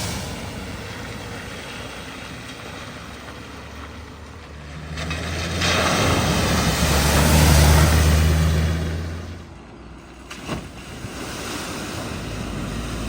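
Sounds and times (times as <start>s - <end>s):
vehicle engine: 0.0s - 13.0s
water rushing from wheels: 0.0s - 13.0s.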